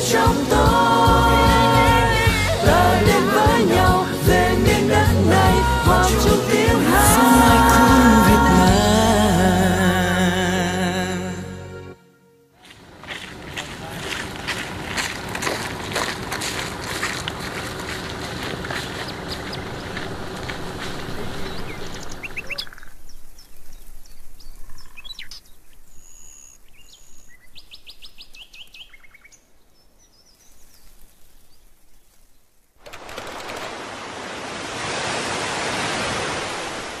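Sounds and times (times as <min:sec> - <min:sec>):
dense outdoor clicking noise: 0:13.3 - 0:23.0, 0:30.6 - 0:33.9
small birds chirping: 0:18.7 - 0:32.6.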